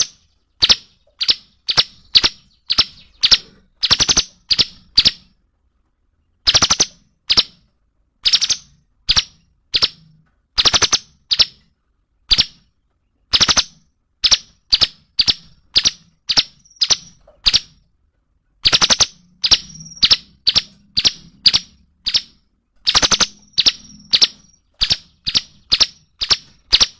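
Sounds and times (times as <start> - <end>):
bird calling in sharp notes: 18.6 - 26.9.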